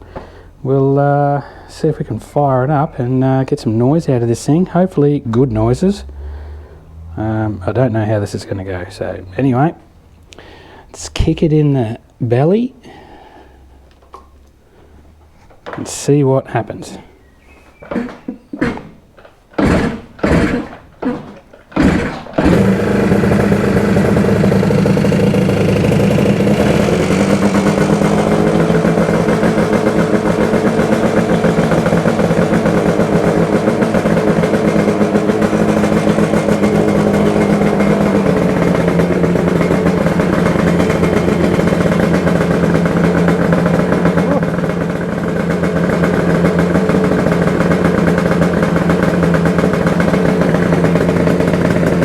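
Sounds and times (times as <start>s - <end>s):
motorcycle engine running: 19.5s - 52.0s.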